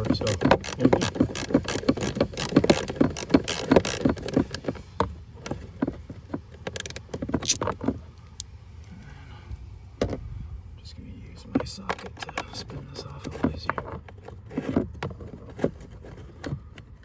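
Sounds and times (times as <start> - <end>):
hand driver clicking: 0.0 - 8.5.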